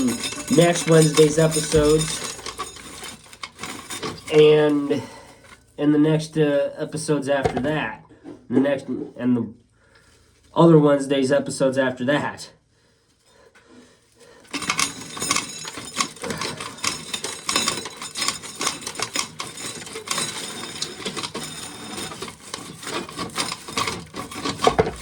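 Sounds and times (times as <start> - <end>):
corn kernels rattling and scraping: 0.0 - 6.4, 14.3 - 25.0.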